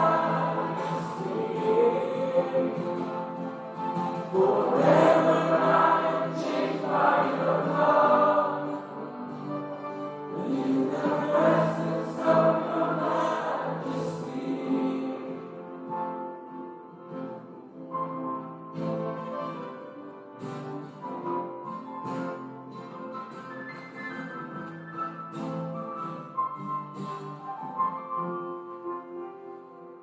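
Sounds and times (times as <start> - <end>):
group singing worship song: 0.0 - 9.4, 10.3 - 15.8
sustained instrumental accompaniment: 0.0 - 23.2.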